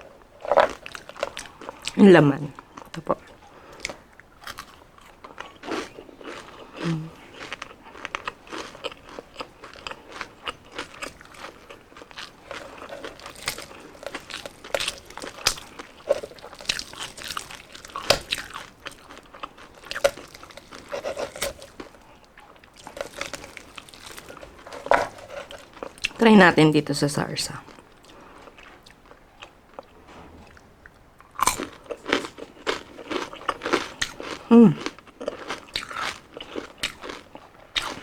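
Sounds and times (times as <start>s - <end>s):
crunching crispy fried skin: 3.7s - 26.2s.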